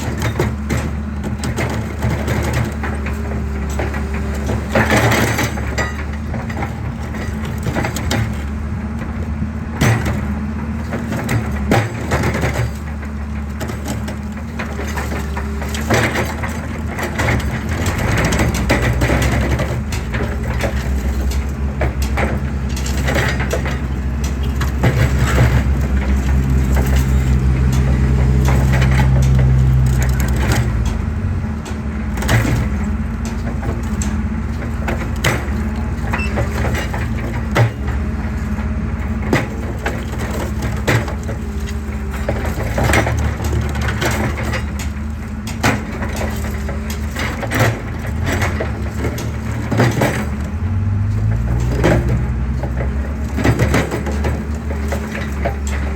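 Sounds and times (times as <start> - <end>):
excavator diesel engine: 0.0 - 55.9.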